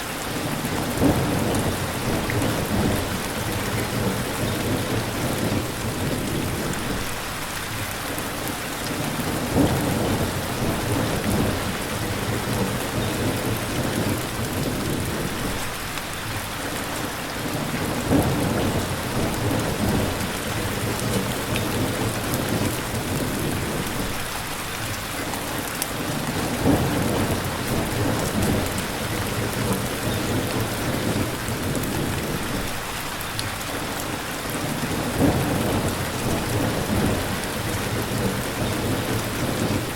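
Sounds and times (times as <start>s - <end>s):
dense rain hissing: 0.0s - 39.9s
rolling thunder: 9.1s - 15.7s, 17.8s - 24.2s, 26.1s - 32.8s, 34.9s - 39.9s.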